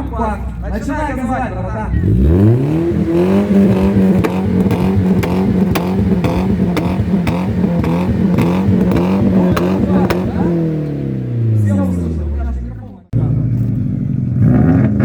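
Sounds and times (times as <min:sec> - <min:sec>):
car engine revving hard: 0:02.0 - 0:12.4, 0:14.2 - 0:15.0.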